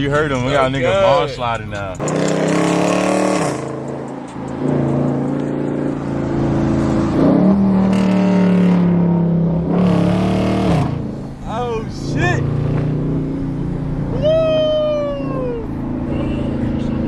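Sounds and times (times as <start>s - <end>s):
car engine revving hard: 2.0s - 11.3s.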